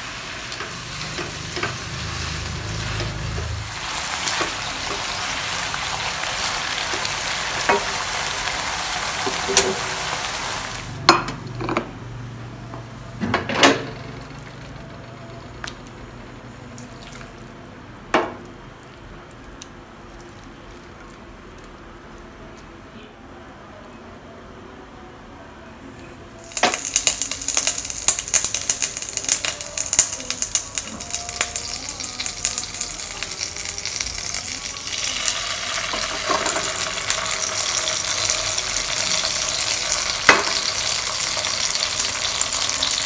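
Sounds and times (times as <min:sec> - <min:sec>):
food sizzling in a wok: 0:00.0 - 0:11.0, 0:26.4 - 0:43.0.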